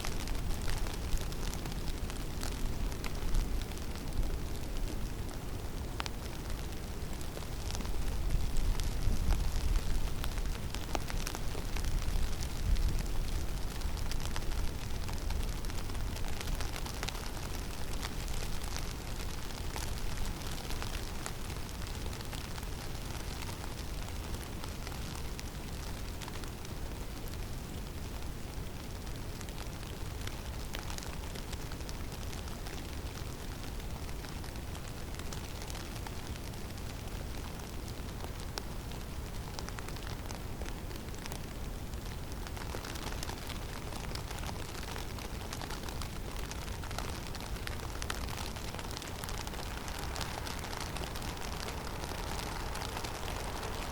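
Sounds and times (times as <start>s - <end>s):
low rumble of wind: 0.0s - 53.9s
small ticks and crackles: 0.0s - 53.9s
snow pattering on branches: 42.4s - 53.9s.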